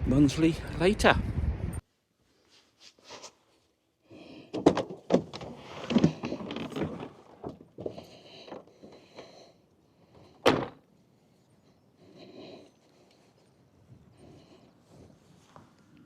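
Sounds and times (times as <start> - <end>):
door knocks and rattles: 10.4 - 10.8
door shutting thunk: 10.4 - 10.8.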